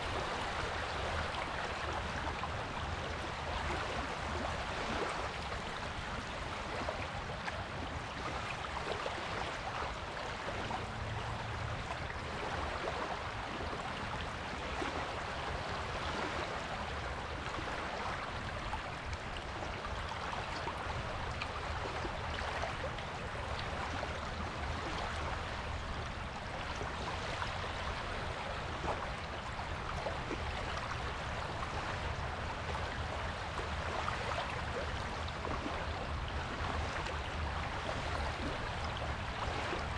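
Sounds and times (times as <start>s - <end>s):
surf on a beach: 0.0s - 39.9s.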